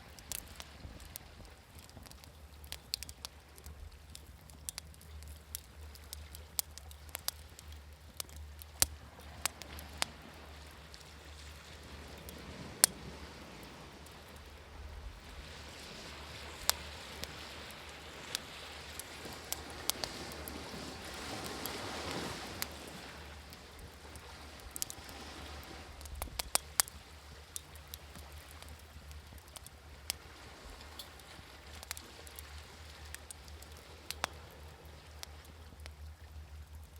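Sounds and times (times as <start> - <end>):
wood fire crackling and popping: 0.1 - 36.0
sea wave washing: 8.3 - 35.5.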